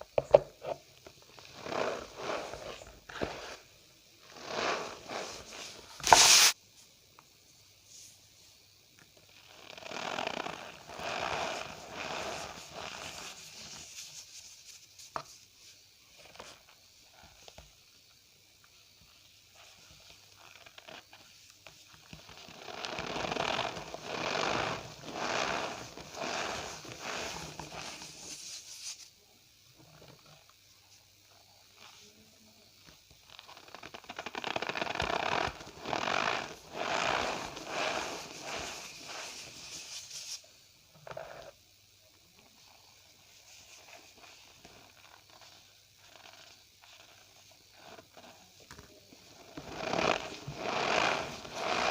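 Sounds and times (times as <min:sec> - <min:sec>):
faint crackles: 0:19.5 - 0:29.1, 0:31.8 - 0:41.5, 0:42.6 - 0:51.9.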